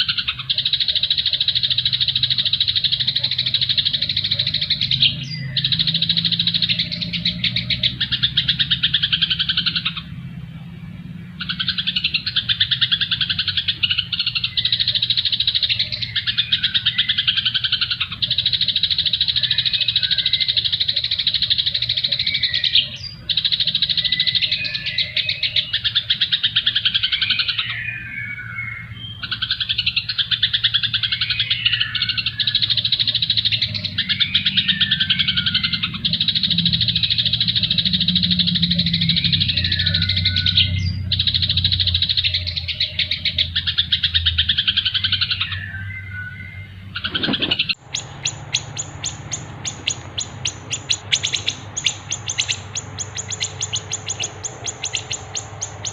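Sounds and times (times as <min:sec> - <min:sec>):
high ticking bird notes: 0:00.0 - 0:55.9
songbird chirping: 0:00.0 - 0:55.9.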